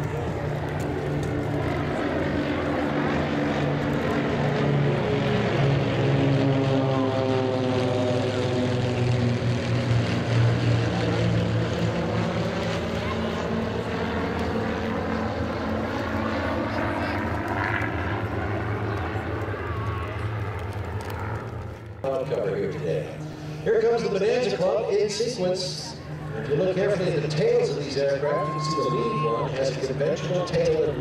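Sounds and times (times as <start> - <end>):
propeller airplanes droning past: 0.0 - 31.0.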